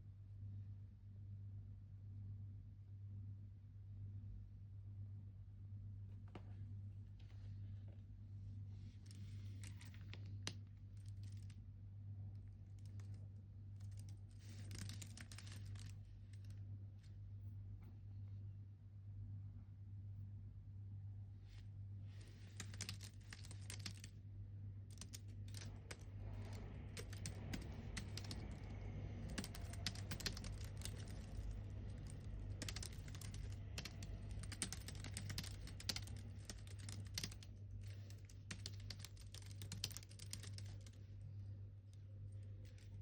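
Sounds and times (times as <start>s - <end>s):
low steady hum: 0.0s - 43.0s
typing on computer keyboard: 13.9s - 15.9s, 22.5s - 24.1s, 24.9s - 41.0s.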